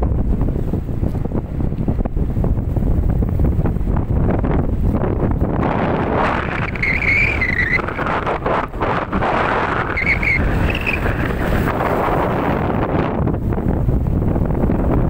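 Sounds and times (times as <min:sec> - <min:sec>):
wind buffeting microphone: 0:00.0 - 0:15.0
high whistling tones: 0:06.2 - 0:08.4, 0:09.4 - 0:11.4.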